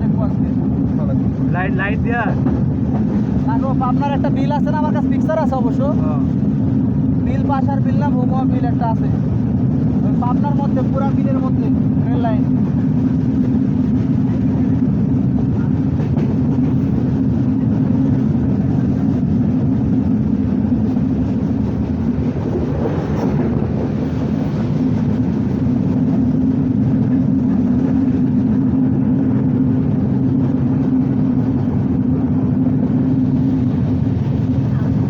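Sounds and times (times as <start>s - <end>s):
train rumbling at speed: 0.0s - 35.0s.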